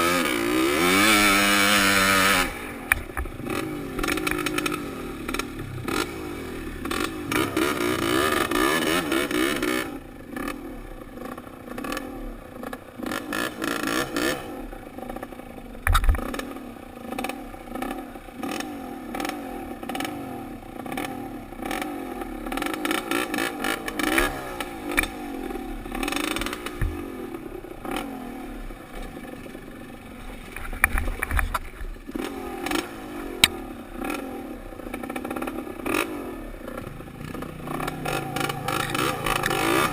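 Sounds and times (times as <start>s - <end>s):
dirt bike engine revving: 0.0s - 15.4s, 16.0s - 39.9s.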